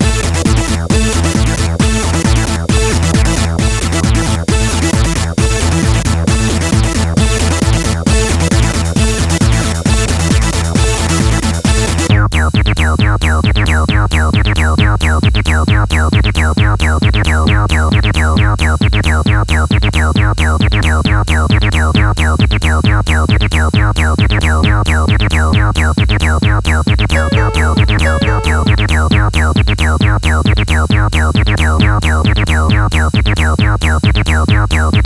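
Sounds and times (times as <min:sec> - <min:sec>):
techno music: 0:00.0 - 0:12.1, 0:27.2 - 0:29.0.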